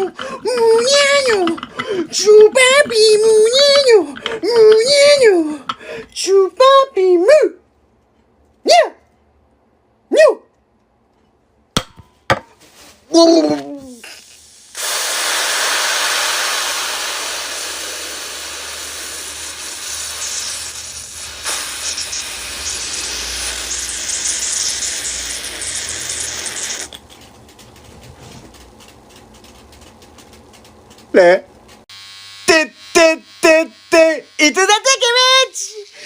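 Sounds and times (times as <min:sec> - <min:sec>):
loud steady hiss: 0:14.0 - 0:26.8.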